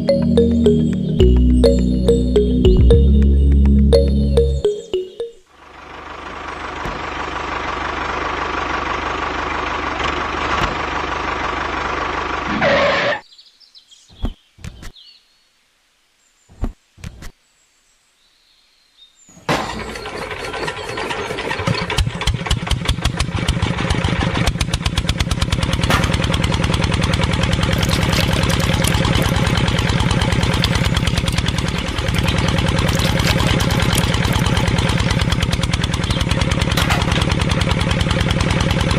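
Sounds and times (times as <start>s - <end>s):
small motor humming: 27.6s - 36.4s.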